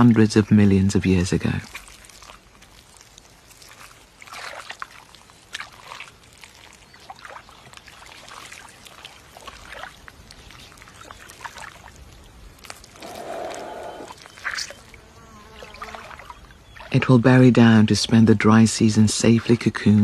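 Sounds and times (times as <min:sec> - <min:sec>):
wet squelches and slaps in mud: 0:01.6 - 0:14.9.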